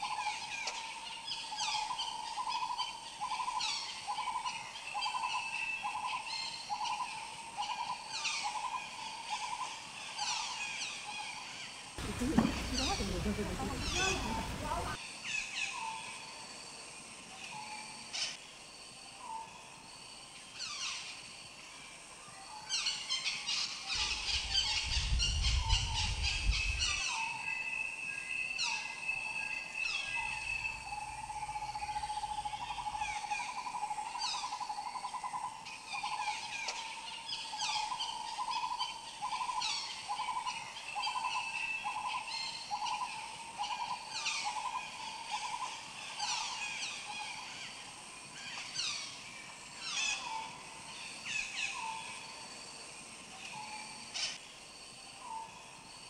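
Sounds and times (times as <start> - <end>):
birds chirping: 12.0 - 15.0.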